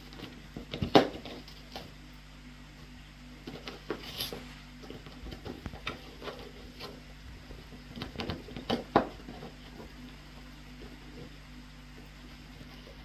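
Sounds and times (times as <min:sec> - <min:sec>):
light taps knocks and rustles: 0:03.4 - 0:11.3.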